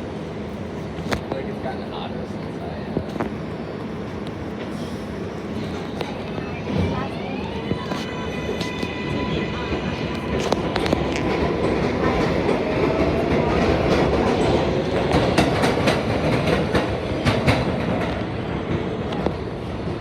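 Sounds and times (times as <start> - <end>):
train wheels rumbling on rails: 0.0 - 20.0
clickety-clack over rail joints: 9.7 - 20.0.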